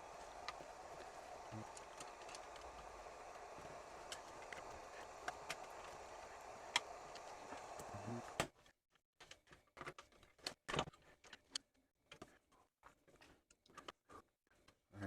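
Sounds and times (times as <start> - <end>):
steady background hiss: 0.0 - 8.4.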